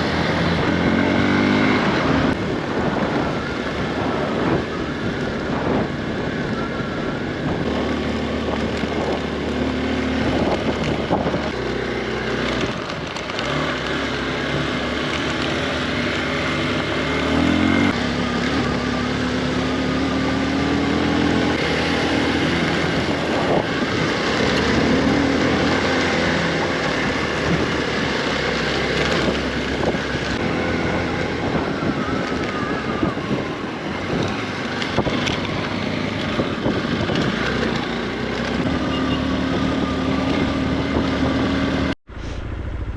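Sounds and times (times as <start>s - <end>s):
wind noise on microphone: 0.0s - 11.6s, 20.4s - 42.9s.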